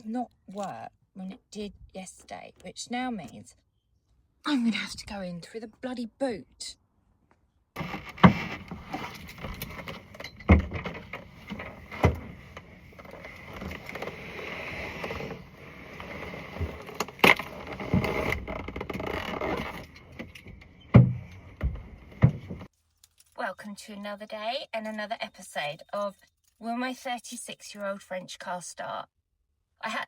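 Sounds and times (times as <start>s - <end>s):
sharp knocks and thumps: 7.8s - 13.8s, 20.1s - 22.7s
steady rustling: 7.8s - 23.3s.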